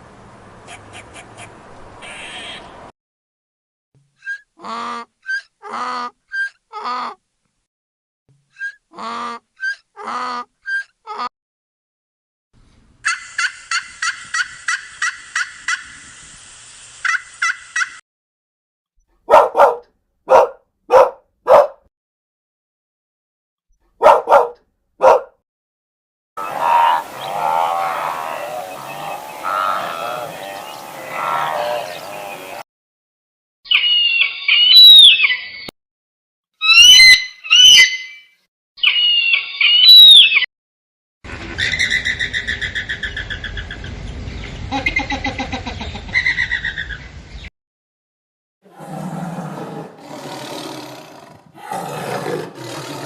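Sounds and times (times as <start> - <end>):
background hiss: 13.6 - 17.7
dog barking: 19.2 - 21.9, 24.0 - 25.4
pitched wavering calls: 26.4 - 32.6, 36.6 - 38.2
bird trills: 36.6 - 40.4
lower pulsed bird call: 36.6 - 40.4.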